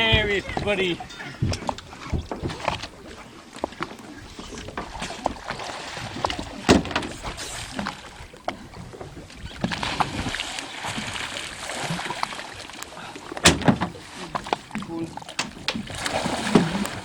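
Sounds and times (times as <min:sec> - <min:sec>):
knocks and clicks on boat: 0:00.0 - 0:17.0.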